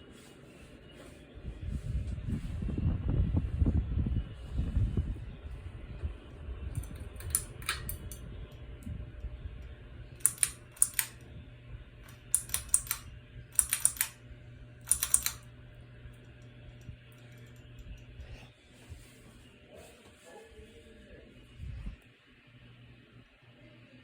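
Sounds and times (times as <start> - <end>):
ceiling fan humming: 0.0 - 24.0
sharp clicks: 6.8 - 8.2, 10.2 - 11.2, 12.0 - 14.2, 14.8 - 15.4.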